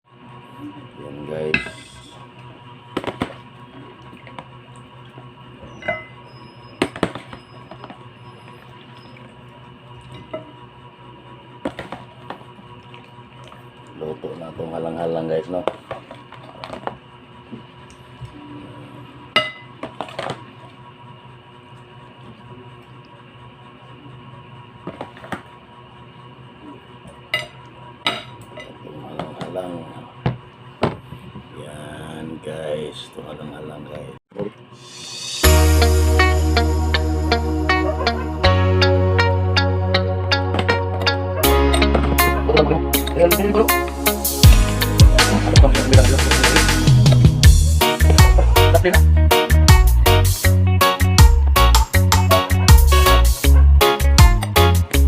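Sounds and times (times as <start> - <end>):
steady low hum: 0.1 - 55.0
utensils clinking against dishes: 1.5 - 2.1, 5.7 - 6.2.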